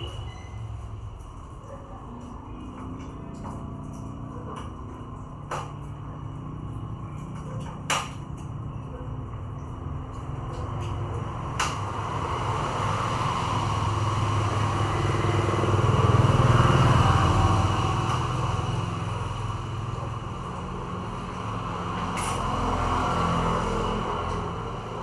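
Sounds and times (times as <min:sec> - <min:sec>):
motor vehicle passing: 0:09.5 - 0:25.0.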